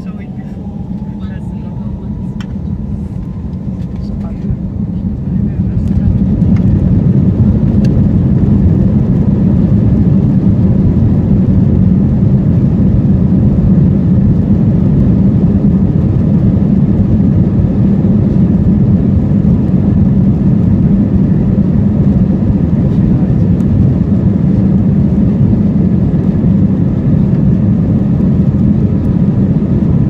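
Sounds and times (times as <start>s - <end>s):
jet engines at takeoff thrust: 0.0s - 30.0s.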